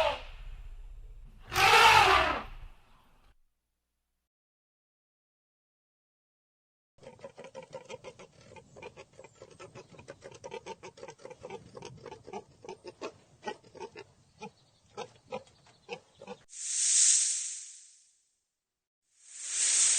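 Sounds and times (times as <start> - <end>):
farm animal rapid short calls: 1.5 - 2.7.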